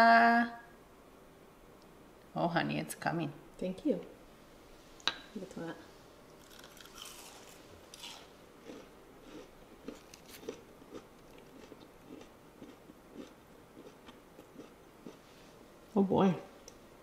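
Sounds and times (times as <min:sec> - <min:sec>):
crunching breaded crust: 0:06.4 - 0:15.2
steady chewing: 0:06.4 - 0:15.4.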